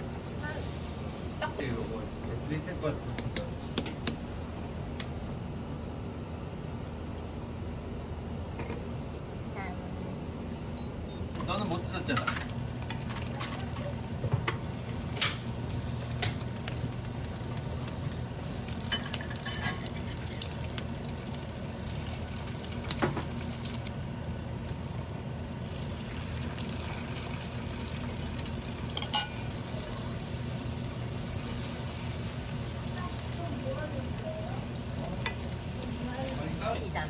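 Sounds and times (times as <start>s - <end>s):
food sizzling in a pan: 11.4s - 24.0s, 24.7s - 37.0s.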